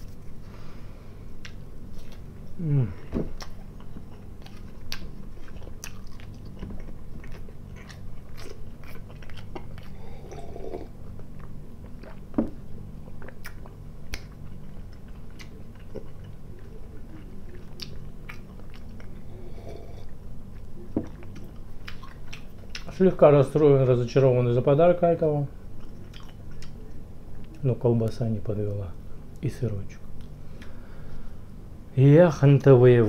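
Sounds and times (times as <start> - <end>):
steady low hum: 0.0 - 33.0
chewing food: 3.3 - 23.0, 25.7 - 27.6.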